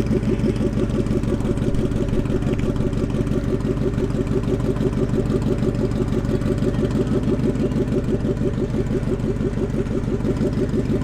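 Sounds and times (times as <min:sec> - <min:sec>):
drag car engine idling: 0:00.0 - 0:11.0.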